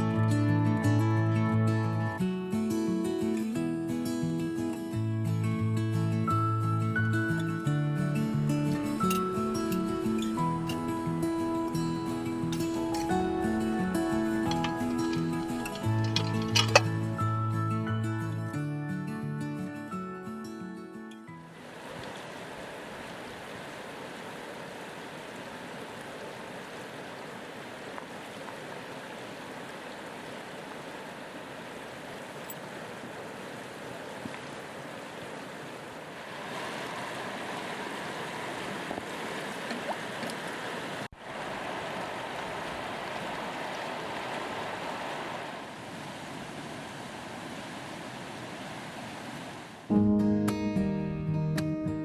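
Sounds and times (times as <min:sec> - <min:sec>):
stream rushing: 0:07.2 - 0:17.2, 0:21.4 - 0:49.9.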